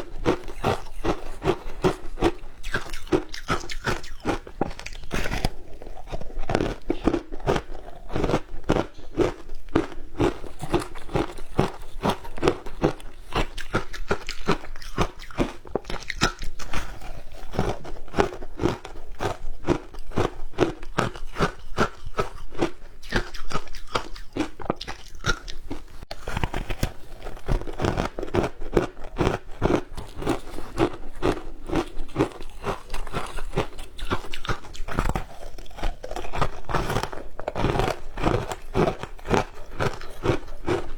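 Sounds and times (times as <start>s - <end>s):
crunching shaved ice: 0.0s - 40.9s.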